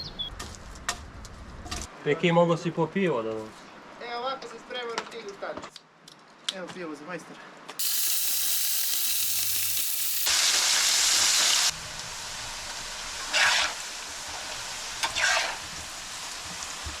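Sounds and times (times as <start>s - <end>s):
meat sizzling on a grill: 7.8s - 17.0s.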